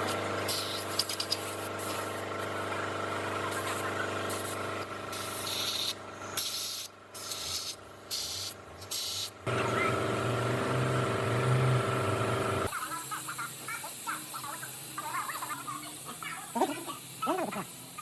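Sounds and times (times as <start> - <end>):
hissing spray bursts: 0.5 - 2.2, 3.5 - 9.4
steady machine hum: 9.4 - 12.7.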